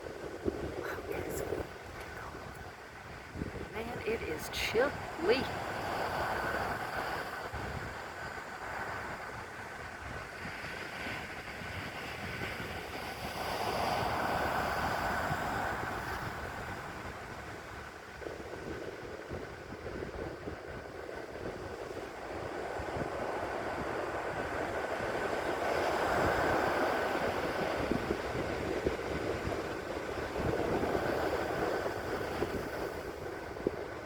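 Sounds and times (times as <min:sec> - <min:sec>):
ocean surf crashing: 0:00.0 - 0:34.0
wind rumble on microphone: 0:00.0 - 0:34.0.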